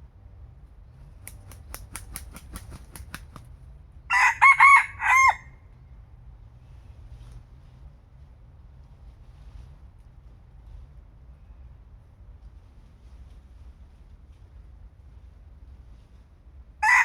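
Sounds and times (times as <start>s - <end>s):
sharp claps: 1.2s - 3.4s
rooster crowing: 4.1s - 5.6s.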